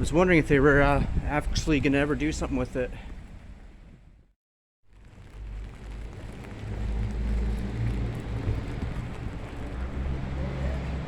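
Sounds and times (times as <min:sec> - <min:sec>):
wind gusts on microphone: 0:00.0 - 0:04.2
rain: 0:04.8 - 0:11.0.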